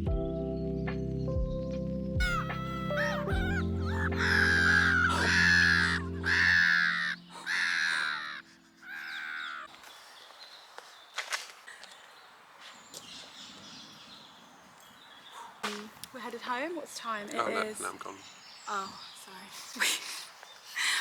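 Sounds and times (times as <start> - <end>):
music with long held notes: 0.0 - 7.4
crow cawing: 2.2 - 9.7.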